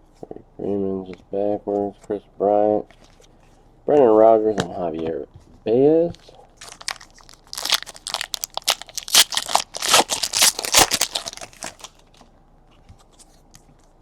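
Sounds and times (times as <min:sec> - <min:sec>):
foil wrappers crinkling: 0:06.6 - 0:12.3.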